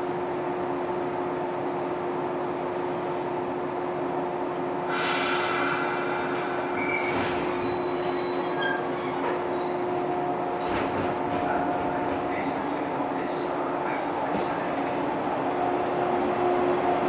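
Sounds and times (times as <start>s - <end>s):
electric train pulling away: 4.8s - 8.7s
short wheel squeals: 5.0s - 9.8s.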